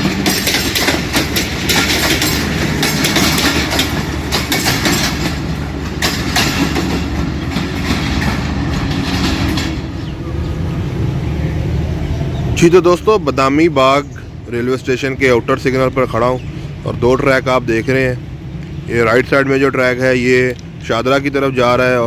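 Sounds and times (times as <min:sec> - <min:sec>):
train wheels clacking over rail joints: 0:00.0 - 0:10.2
train rumble: 0:00.0 - 0:22.0.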